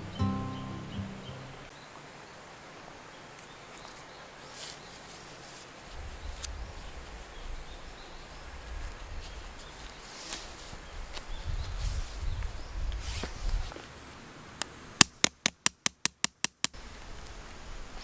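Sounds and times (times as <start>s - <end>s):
faint birds: 0.0s - 2.4s
faint insects: 16.8s - 18.0s.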